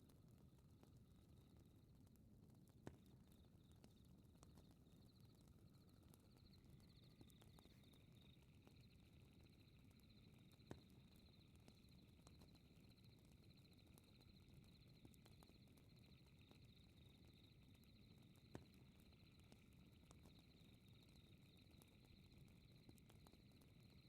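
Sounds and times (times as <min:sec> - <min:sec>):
fireplace crackling and popping: 0:00.0 - 0:24.0
crickets chirping: 0:05.1 - 0:24.0.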